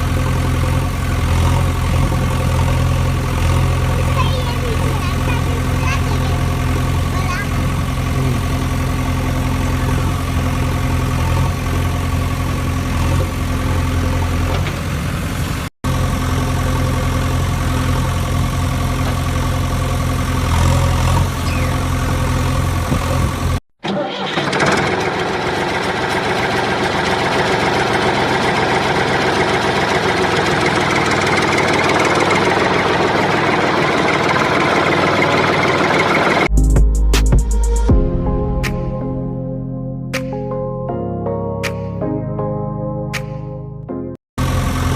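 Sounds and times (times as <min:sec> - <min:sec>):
engine humming: 0:00.0 - 0:23.6, 0:24.4 - 0:36.7, 0:44.4 - 0:44.9.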